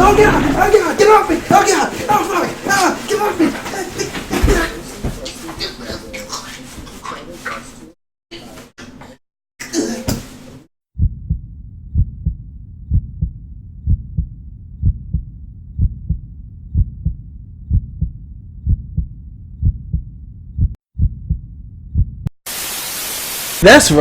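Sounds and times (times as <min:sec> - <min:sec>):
low rumble: 0:00.0 - 0:01.5, 0:11.0 - 0:22.3
heartbeat thumps: 0:00.0 - 0:01.8, 0:11.0 - 0:22.3.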